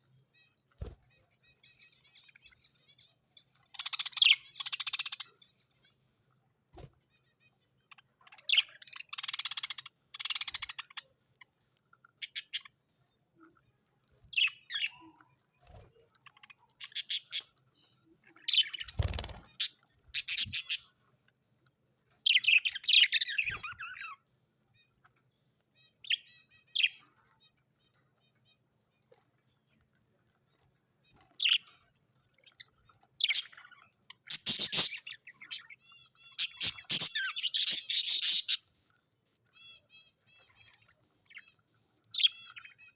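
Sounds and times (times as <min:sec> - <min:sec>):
birds chirping and chattering: 0:00.0 - 0:42.9.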